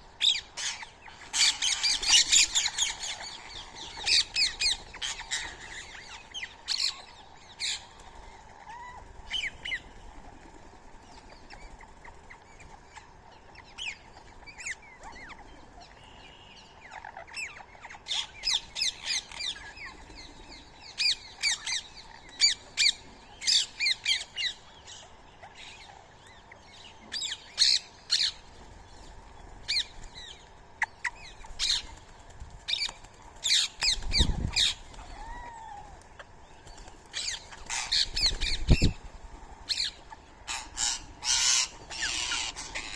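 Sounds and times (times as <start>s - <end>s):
parakeets squawking: 0.3s - 7.0s, 37.1s - 39.0s, 39.7s - 42.9s.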